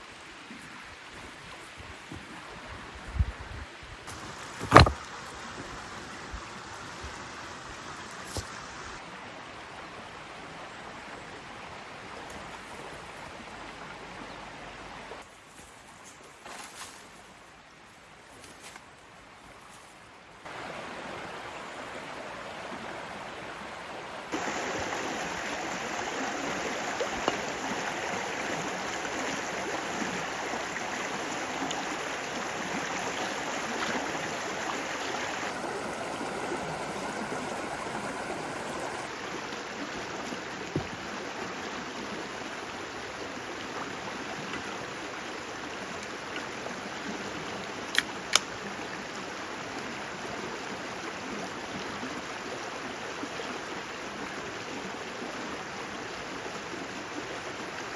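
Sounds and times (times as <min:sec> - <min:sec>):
rushing water: 0:00.0 - 0:15.4, 0:20.4 - 0:57.9
sharp click: 0:47.9 - 0:48.5.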